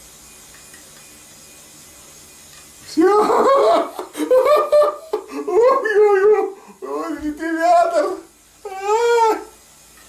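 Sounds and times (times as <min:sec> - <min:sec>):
electric fan humming: 0:00.0 - 0:10.0
man laughing loudly: 0:03.0 - 0:07.8.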